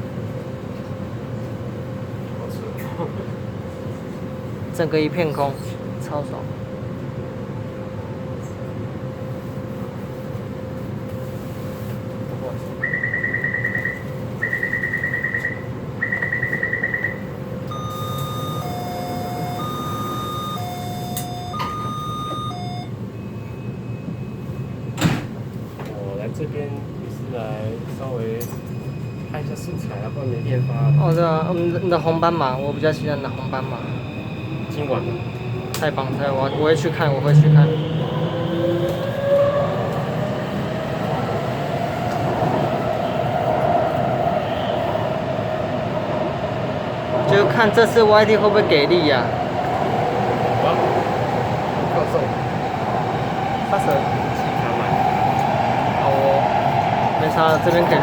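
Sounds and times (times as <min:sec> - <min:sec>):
metro train rumble: 0:00.0 - 0:58.0
two-note electronic tone: 0:16.1 - 0:22.9
train running rumble: 0:34.8 - 0:58.0.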